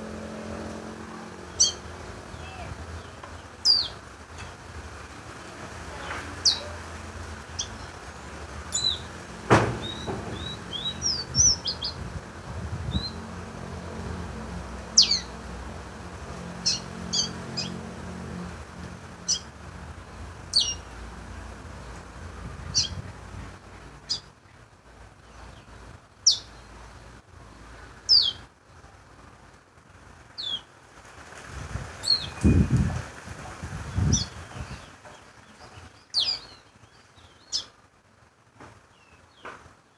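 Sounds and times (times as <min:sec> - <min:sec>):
songbird chirping: 0:00.0 - 0:24.6, 0:25.2 - 0:27.0, 0:27.6 - 0:28.5, 0:30.4 - 0:30.8, 0:33.7 - 0:37.8
knock: 0:09.5 - 0:10.6.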